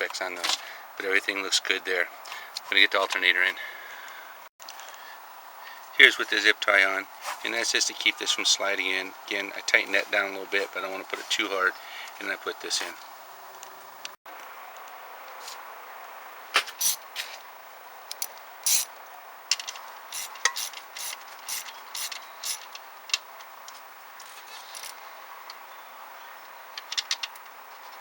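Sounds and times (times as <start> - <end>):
ratchet clicks: 18.1 - 18.9, 19.5 - 23.3, 26.8 - 28.0
metal tools clinking: 19.5 - 22.8.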